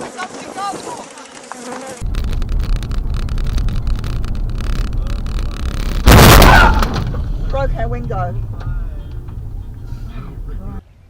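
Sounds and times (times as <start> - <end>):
loud crash: 2.0 - 10.2
vehicle engine rumbling: 2.0 - 10.8.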